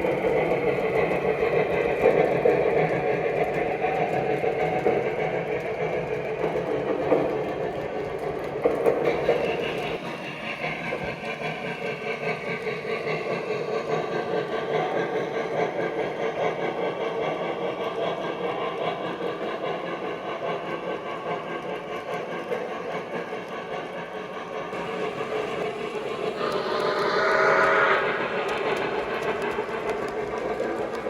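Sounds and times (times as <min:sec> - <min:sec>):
model steam locomotive running: 0:00.0 - 0:31.0
locomotive whistle: 0:24.8 - 0:30.5.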